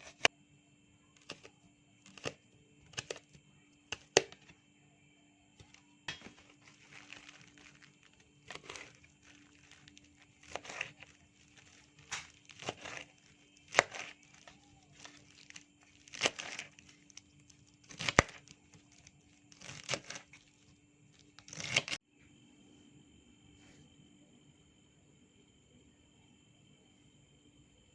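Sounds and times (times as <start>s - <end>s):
food preparation handling noises: 1.2s - 4.5s, 5.6s - 22.0s.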